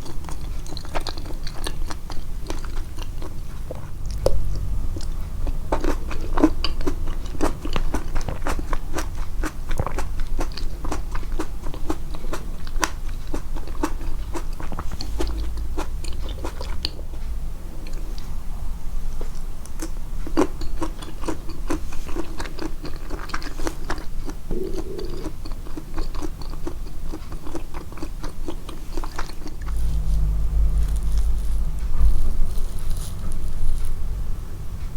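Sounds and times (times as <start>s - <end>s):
crunchy chewing of food: 0.0s - 18.3s, 19.1s - 34.2s
wet mouth sounds: 19.8s - 30.3s.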